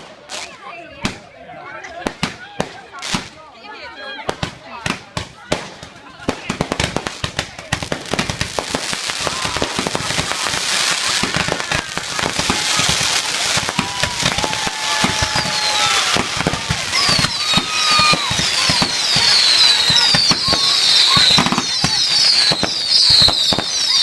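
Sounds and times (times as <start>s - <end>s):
fireworks bangs and crackling: 0.0s - 1.3s, 1.9s - 24.0s
whistling fireworks: 5.4s - 24.0s.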